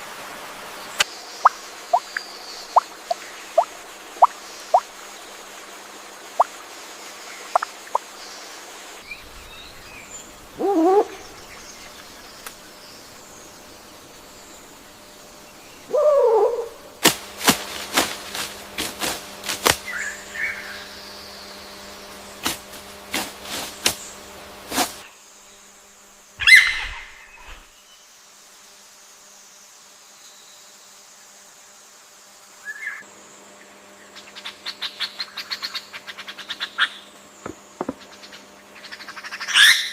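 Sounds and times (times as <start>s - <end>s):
low wavering bird call: 10.6s - 11.5s, 15.9s - 16.9s
higher bird call: 15.9s - 16.9s, 26.4s - 27.6s.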